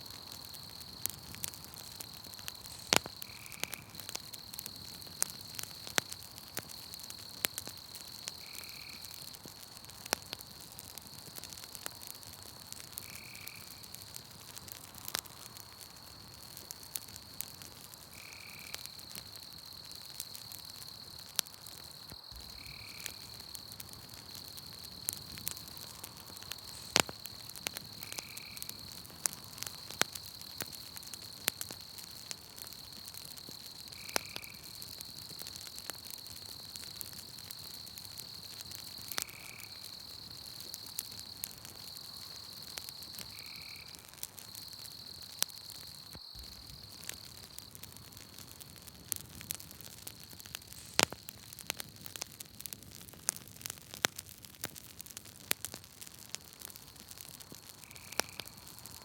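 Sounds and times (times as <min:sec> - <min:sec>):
campfire crackling and popping: 0:00.0 - 0:59.0
high-pitched insect trill: 0:00.1 - 0:09.3, 0:18.2 - 0:47.8, 0:57.8 - 0:59.0.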